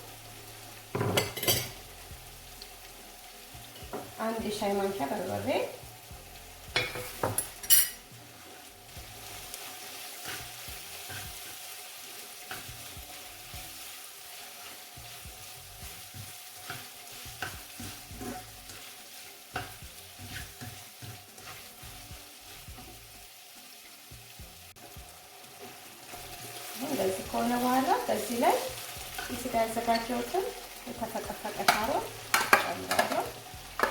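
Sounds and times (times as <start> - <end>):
food sizzling in oil: 0.0 - 33.9.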